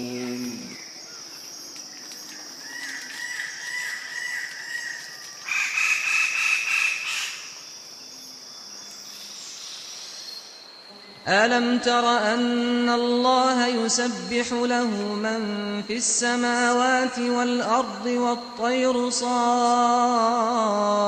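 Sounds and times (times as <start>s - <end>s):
birds calling: 0.0s - 10.6s.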